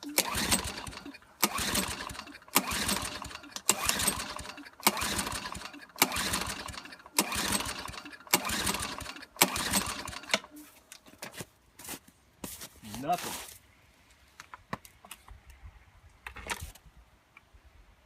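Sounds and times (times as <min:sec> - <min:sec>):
engine turning over without firing: 0:00.0 - 0:10.6
lawnmower starter rope pulled: 0:00.0 - 0:11.4, 0:16.2 - 0:16.8.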